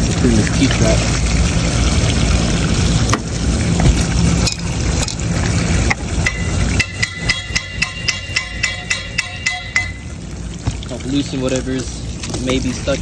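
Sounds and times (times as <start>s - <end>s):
tapping on drain trap: 5.9s - 10.8s.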